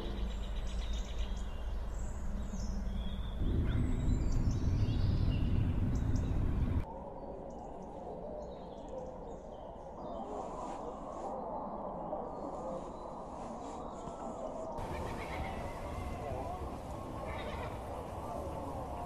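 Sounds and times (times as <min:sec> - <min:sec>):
low rumble: 0:00.0 - 0:06.9, 0:14.8 - 0:19.0
outdoor background noise: 0:00.0 - 0:19.0
birds chirping and whistling: 0:14.8 - 0:19.0.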